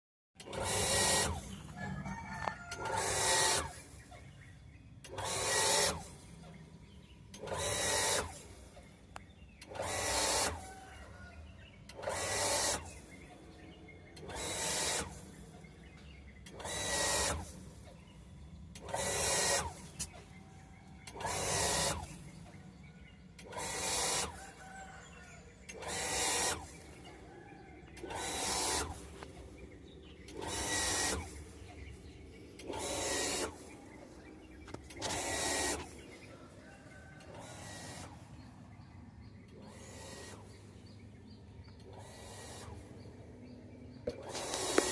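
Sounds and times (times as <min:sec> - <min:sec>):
water pump running: 0:00.4 - 0:04.1, 0:09.6 - 0:11.0, 0:23.2 - 0:38.5.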